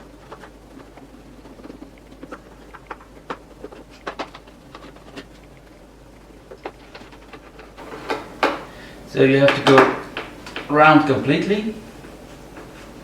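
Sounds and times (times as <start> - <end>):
panel handling: 7.8 - 13.0.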